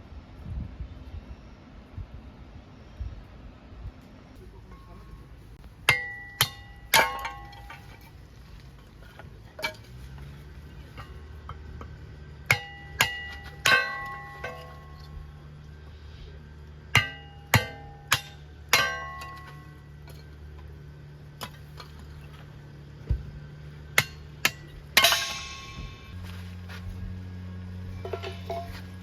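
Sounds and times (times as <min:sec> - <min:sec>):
faint low hum: 0:00.0 - 0:29.0
metal objects clinking: 0:05.9 - 0:15.2, 0:24.0 - 0:26.4, 0:27.8 - 0:29.0.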